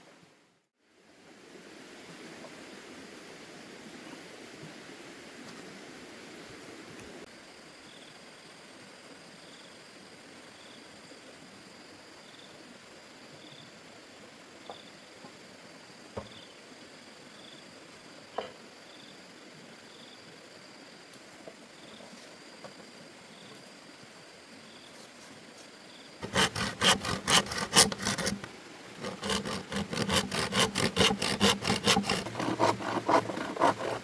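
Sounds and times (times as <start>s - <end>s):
insect drone: 7.3s - 25.0s.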